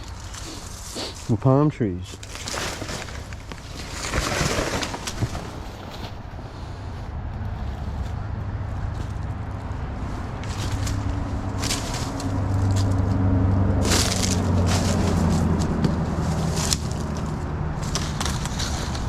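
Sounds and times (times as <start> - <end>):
dry vegetation crunching underfoot: 0.0 - 19.0
low engine-like drone: 5.9 - 19.0.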